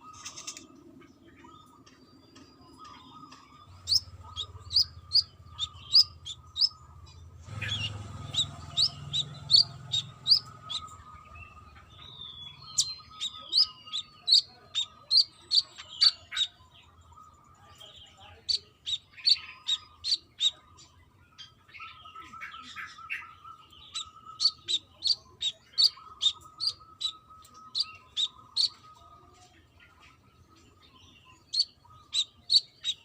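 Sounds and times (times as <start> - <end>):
bird chirping high: 1.4 - 33.0.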